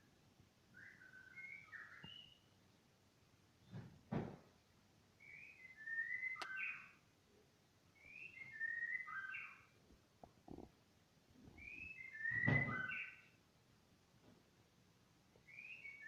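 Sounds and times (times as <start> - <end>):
whistled phrases: 5.2 - 6.9.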